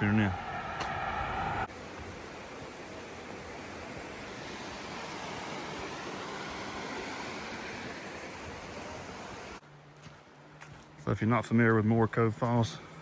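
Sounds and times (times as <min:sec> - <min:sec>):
waterfall rushing: 0:01.7 - 0:09.6.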